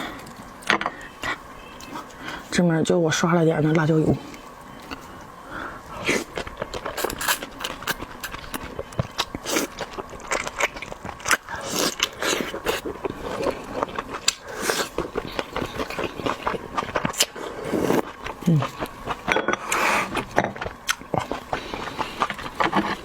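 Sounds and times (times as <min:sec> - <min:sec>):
shellfish being crunched and chewed: 0:06.0 - 0:19.3.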